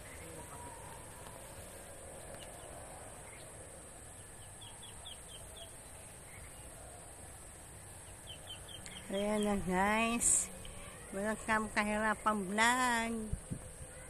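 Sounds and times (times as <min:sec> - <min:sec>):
faint rural outdoor ambience: 0:00.0 - 0:14.0.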